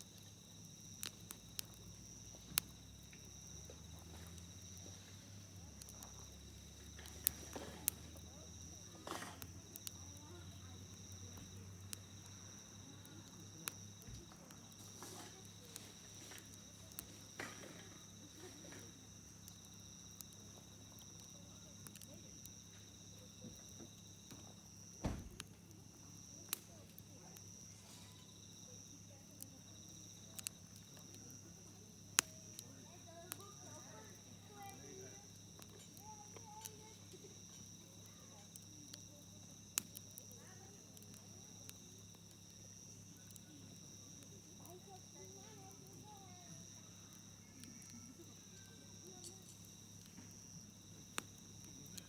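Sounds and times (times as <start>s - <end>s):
campfire crackling and popping: 0.0s - 52.0s
high insect chirring: 0.0s - 52.0s.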